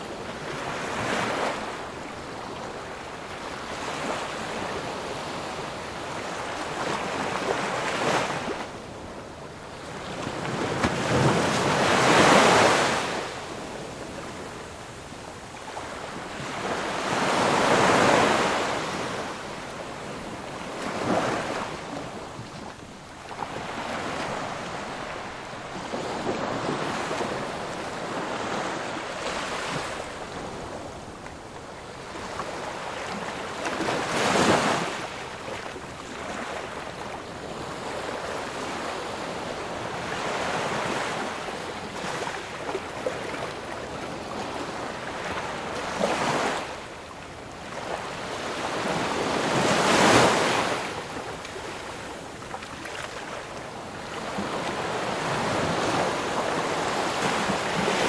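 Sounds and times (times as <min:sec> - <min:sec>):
ocean waves breaking: 0:09.6 - 0:14.4, 0:15.6 - 0:36.9, 0:47.6 - 0:58.0.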